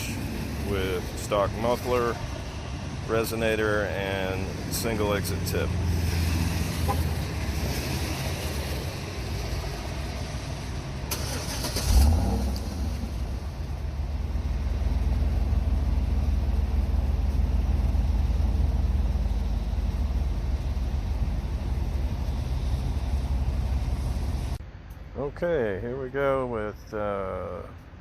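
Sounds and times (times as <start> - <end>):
car engine starting and idling: 0.0 - 24.6.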